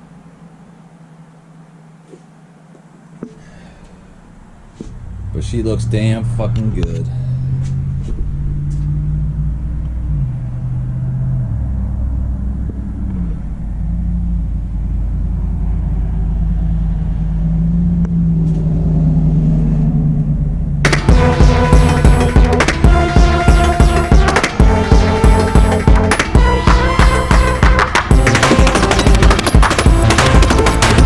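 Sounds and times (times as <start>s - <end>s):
car engine running: 4.2s - 31.0s
music: 20.9s - 31.0s.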